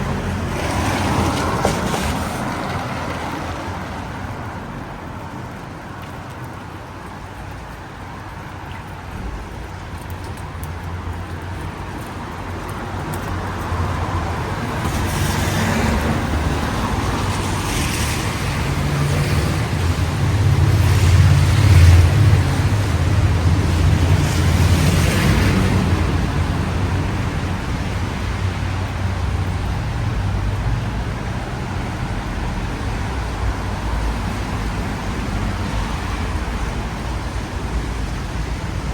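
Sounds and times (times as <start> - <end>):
tyres hissing on wet road: 0.0 - 38.9.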